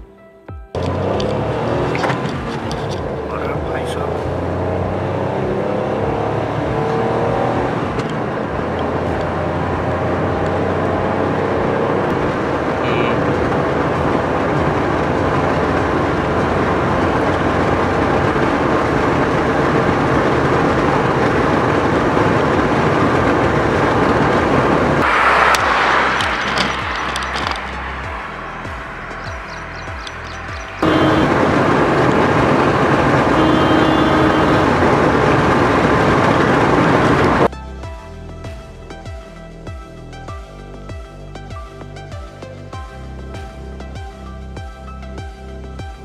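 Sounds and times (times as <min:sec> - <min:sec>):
road noise: 0:00.7 - 0:37.5
car engine accelerating: 0:00.8 - 0:37.5.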